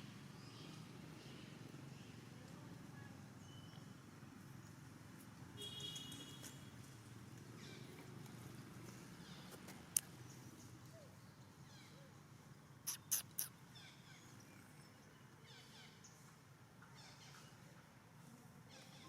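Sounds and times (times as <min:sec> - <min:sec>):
faint outdoor background: 0:00.0 - 0:19.0
high-pitched animal call: 0:12.9 - 0:13.5.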